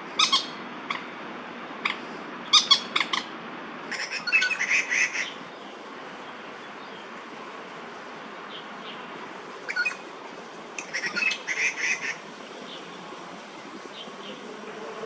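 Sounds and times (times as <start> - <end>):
moorhen alarm calls: 0.2 - 1.1, 3.9 - 5.4, 9.7 - 10.1, 10.8 - 12.9.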